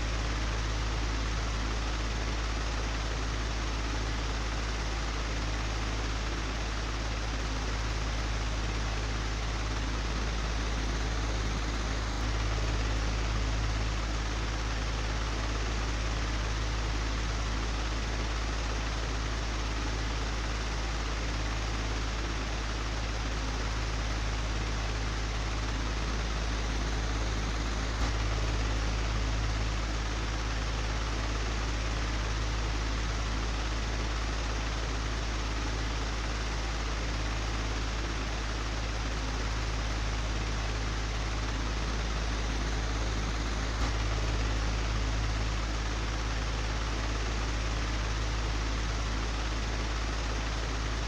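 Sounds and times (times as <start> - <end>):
electric fan humming: 23.2 - 51.0.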